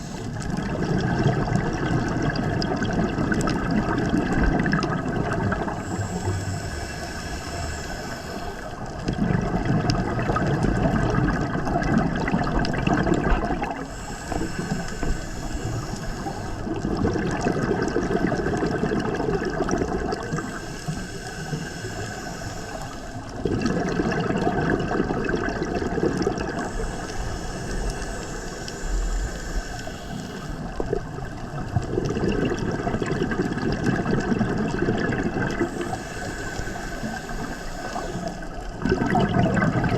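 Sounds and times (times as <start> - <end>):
diver breathing through regulator: 0.0 - 9.6, 11.8 - 39.9
bubbles rushing upward: 0.5 - 5.7, 9.1 - 13.8, 16.8 - 20.3, 23.4 - 26.6, 30.8 - 35.7, 38.8 - 39.9.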